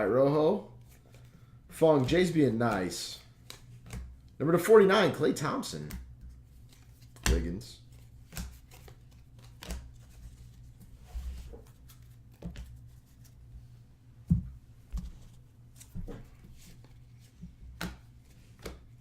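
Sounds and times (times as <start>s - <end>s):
cards tapping and sliding: 2.0s - 4.2s, 5.9s - 13.4s, 14.3s - 19.0s.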